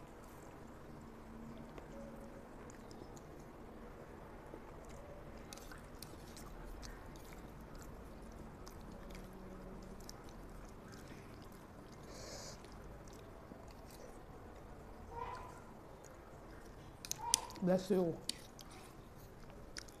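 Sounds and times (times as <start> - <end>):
chewing with wet mouth clicks: 0.2 - 20.0
fork twirling pasta on plate: 16.5 - 17.6.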